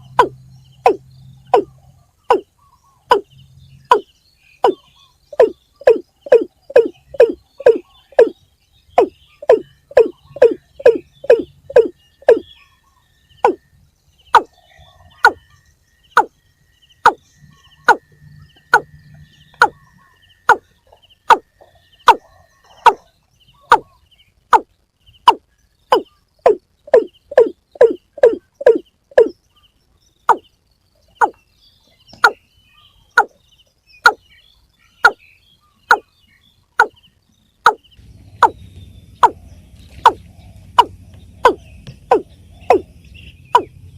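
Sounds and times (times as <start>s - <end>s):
waterbird calling: 0.0s - 3.3s, 3.9s - 8.4s, 9.0s - 12.7s, 13.4s - 13.6s, 14.3s - 16.3s, 17.0s - 24.7s, 25.3s - 29.4s, 34.9s - 36.1s, 36.8s - 37.0s, 37.7s - 43.9s.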